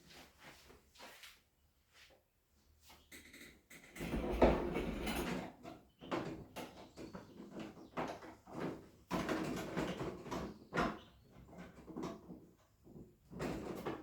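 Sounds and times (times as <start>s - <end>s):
household objects knocking and rustling: 3.1s - 14.0s.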